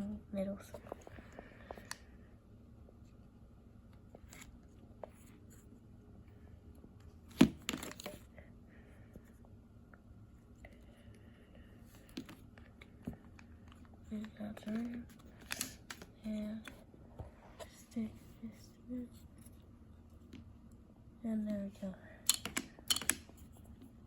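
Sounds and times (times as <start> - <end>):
plastic parts clicking: 14.6 - 16.1, 22.2 - 23.4.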